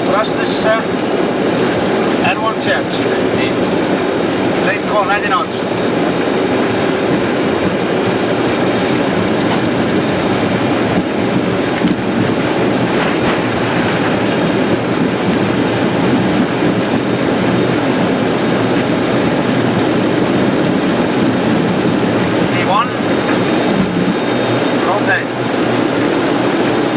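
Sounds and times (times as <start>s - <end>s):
jet engines at takeoff thrust: 0.0s - 26.9s
takeoff roll rumble: 0.0s - 26.9s.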